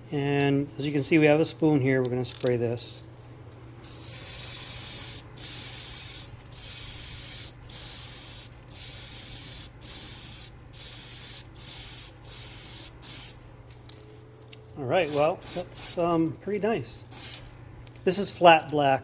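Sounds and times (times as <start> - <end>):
airbrush spraying hiss: 3.8 - 13.4, 15.0 - 16.1, 17.1 - 17.5.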